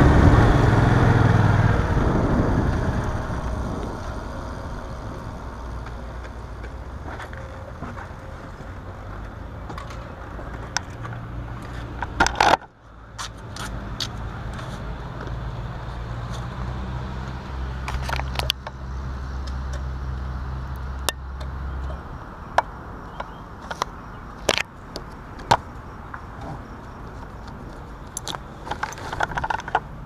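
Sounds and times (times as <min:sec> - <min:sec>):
handling clicks and knocks: 0:22.6 - 0:29.9.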